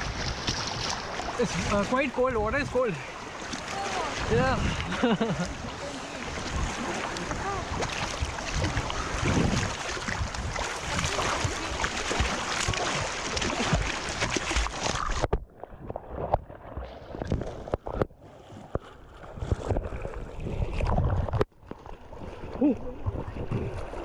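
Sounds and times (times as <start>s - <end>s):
river water rushing: 0.0s - 15.2s
wind buffeting microphone: 4.1s - 5.0s, 5.6s - 12.8s.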